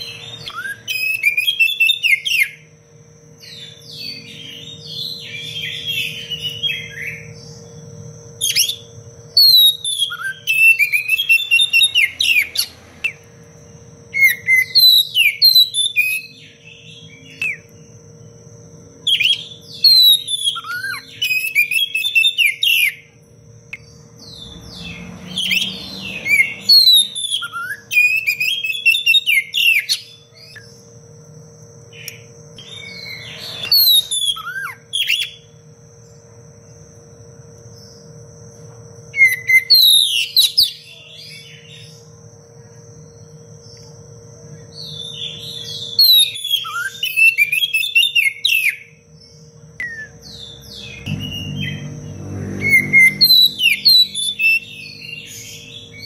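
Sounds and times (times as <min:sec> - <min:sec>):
bird singing whistled phrases: 0:00.0 - 0:02.7, 0:08.4 - 0:13.2, 0:14.2 - 0:17.8, 0:19.1 - 0:23.1, 0:24.3 - 0:30.7, 0:32.0 - 0:35.5, 0:39.2 - 0:41.9, 0:44.7 - 0:49.0, 0:49.8 - 0:51.9, 0:52.6 - 0:56.0.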